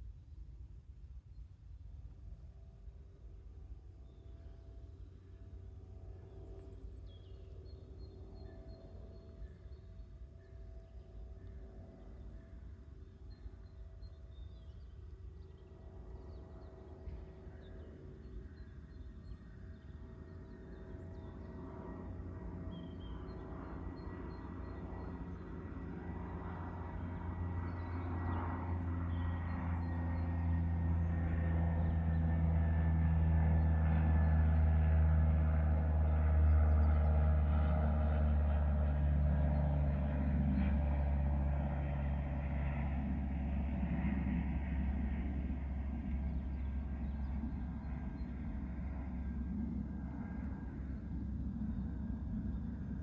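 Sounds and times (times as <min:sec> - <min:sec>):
passing engine droning: 0:05.0 - 0:53.0.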